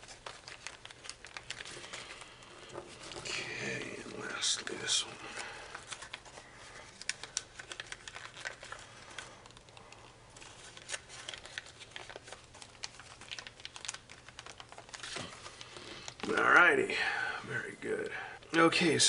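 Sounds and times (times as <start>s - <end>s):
foil paper crinkling: 0.0s - 17.2s.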